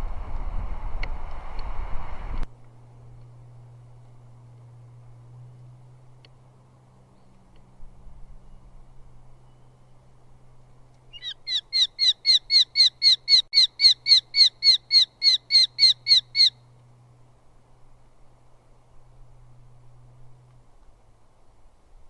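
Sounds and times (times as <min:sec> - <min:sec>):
low electrical hum: 0:00.0 - 0:22.0
bird calling sharp high notes: 0:11.1 - 0:16.6.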